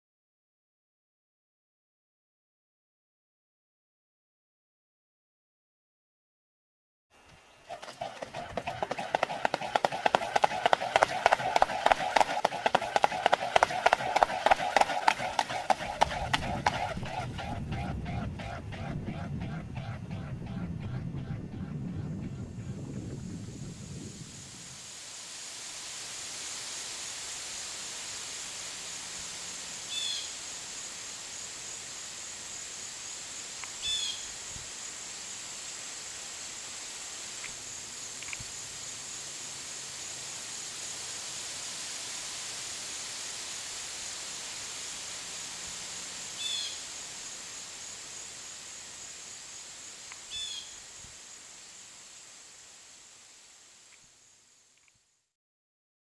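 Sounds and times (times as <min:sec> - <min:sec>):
steady high-pitched drone: 0:08.0 - 0:23.1.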